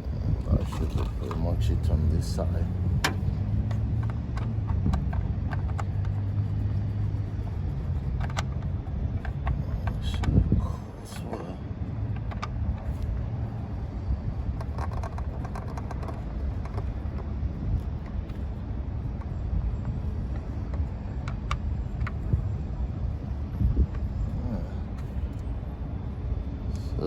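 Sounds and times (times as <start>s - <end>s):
street traffic rumble: 0.0s - 27.0s
light clicks and taps: 0.4s - 11.4s, 12.0s - 13.3s, 14.5s - 22.6s.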